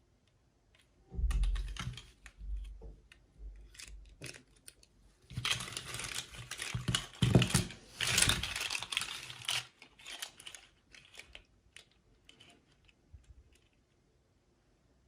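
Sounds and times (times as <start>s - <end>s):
packaging rustling and crinkling: 4.2s - 11.5s.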